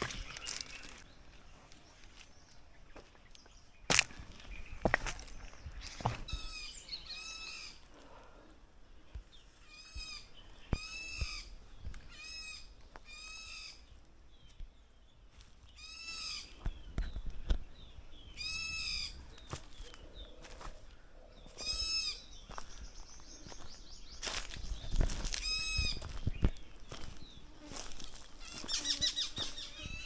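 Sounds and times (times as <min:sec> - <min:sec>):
bird bleating calls: 0:15.8 - 0:16.6, 0:28.4 - 0:30.0.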